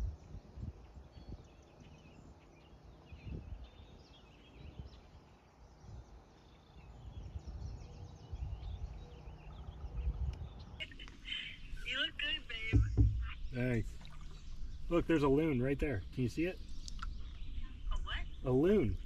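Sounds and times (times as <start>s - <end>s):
faint songbirds chirping: 0.0s - 19.0s
low rumbling noise: 6.9s - 19.0s.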